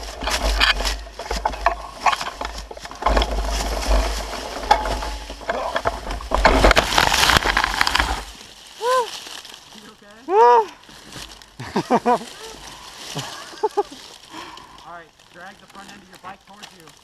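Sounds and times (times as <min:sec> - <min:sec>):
dirt bike crashing down slope: 0:00.0 - 0:08.3.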